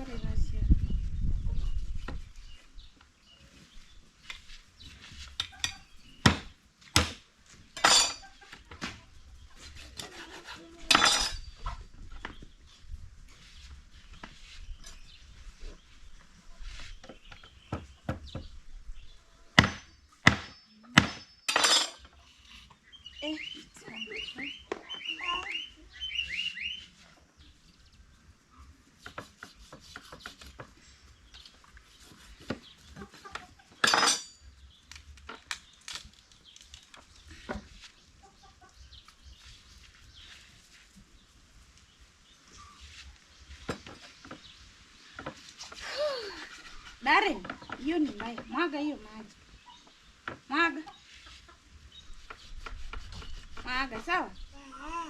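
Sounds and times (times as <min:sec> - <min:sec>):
metal pots and dishes clanking: 0:07.8 - 0:08.3, 0:20.5 - 0:22.1, 0:33.8 - 0:34.4
bird chirping: 0:11.3 - 0:34.9.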